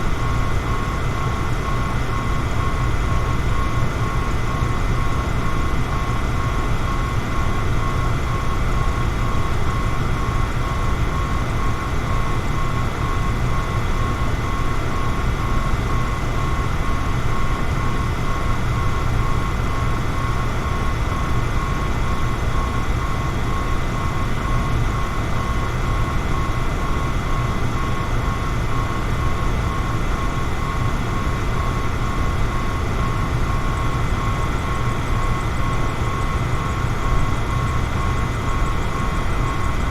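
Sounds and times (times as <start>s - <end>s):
electric fan running: 0.0s - 39.9s
thin steady whine: 0.0s - 39.9s.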